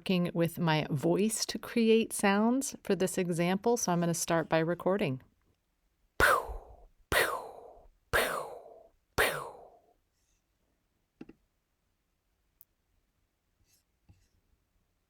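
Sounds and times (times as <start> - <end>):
percussive count-in beats: 6.2 - 9.8.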